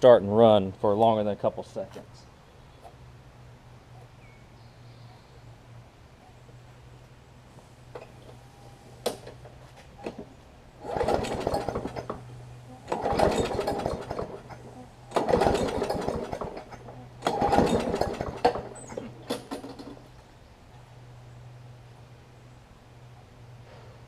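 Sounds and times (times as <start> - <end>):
lawn mower engine pull-starting: 7.9 - 20.2.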